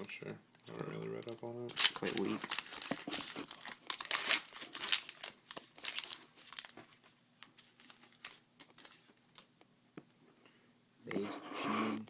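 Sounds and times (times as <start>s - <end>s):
wrapper tearing and crinkling: 1.2s - 9.5s.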